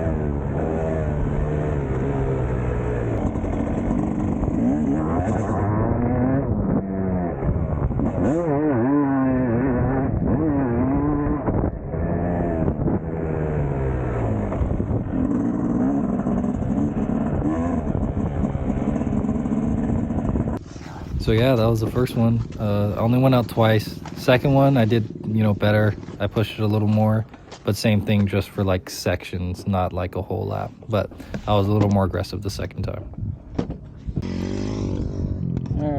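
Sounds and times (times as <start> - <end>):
motocross bike engine revving: 0.0 - 27.0, 34.2 - 35.9.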